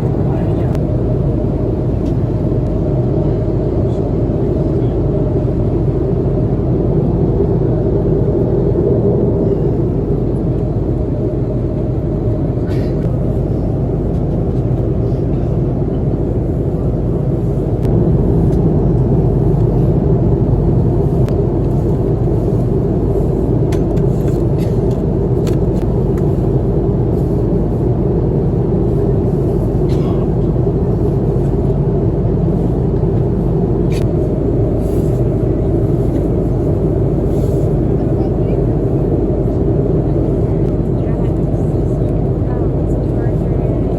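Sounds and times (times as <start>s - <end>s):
airliner engines and airflow rumble: 0.0s - 43.9s.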